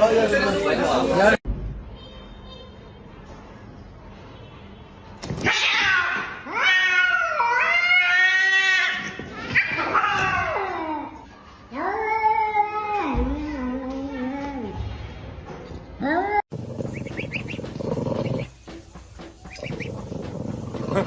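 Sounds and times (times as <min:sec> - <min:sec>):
cat yowling: 0:05.5 - 0:10.7.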